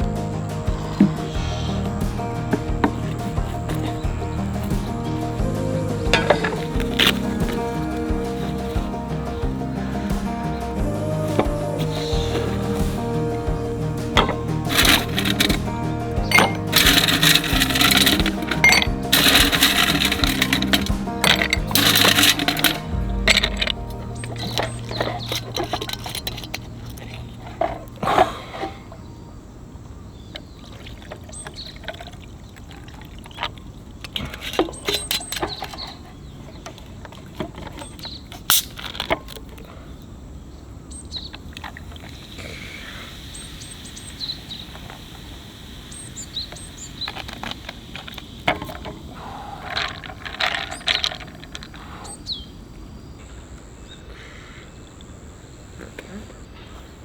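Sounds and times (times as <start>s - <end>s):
outdoor background noise: 0.0s - 57.0s
clicks and rustles of handling: 14.2s - 28.0s, 30.3s - 39.8s.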